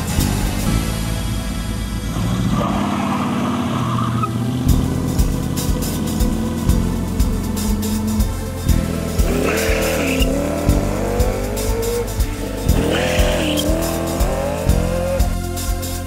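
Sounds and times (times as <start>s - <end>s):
car engine revving: 1.3s - 16.0s
tire squeal: 1.7s - 6.7s, 7.4s - 15.9s
rock music with drum beat: 4.7s - 16.0s.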